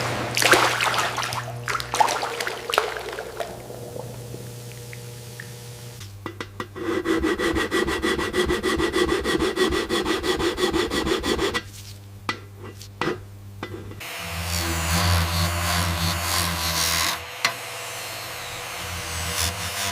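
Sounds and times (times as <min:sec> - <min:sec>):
steady hum: 0:00.0 - 0:19.9
rubbing strokes on silverware: 0:06.7 - 0:12.0.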